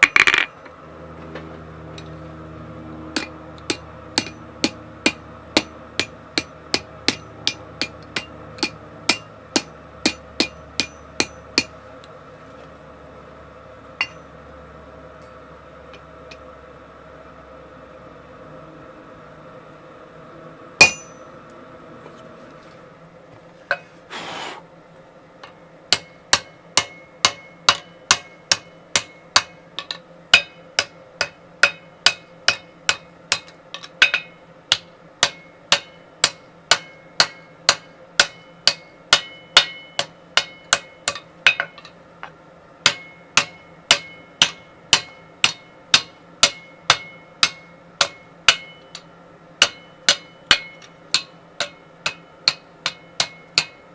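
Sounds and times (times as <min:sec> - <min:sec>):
hammer striking steel on anvil: 0:00.0 - 0:00.6, 0:03.2 - 0:11.8, 0:14.0 - 0:14.4, 0:20.8 - 0:21.3, 0:25.9 - 0:42.0, 0:42.8 - 0:53.9.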